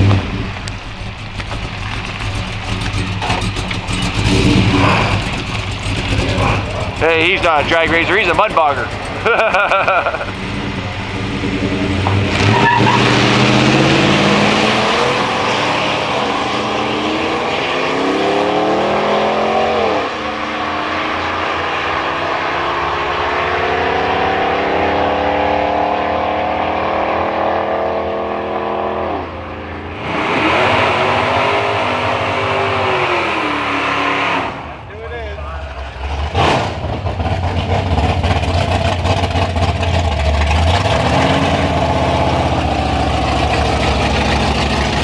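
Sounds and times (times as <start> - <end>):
engine at full throttle: 0.0 - 45.0
louder engine: 1.9 - 45.0.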